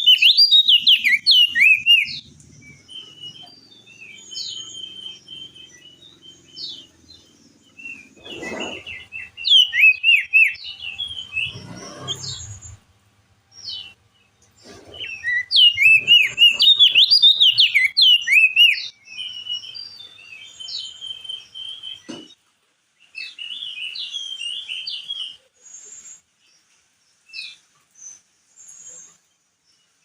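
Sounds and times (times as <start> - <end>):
bird singing whistled notes: 0.0 - 12.8, 15.0 - 22.1, 23.1 - 26.2
bird short calls: 7.9 - 12.8.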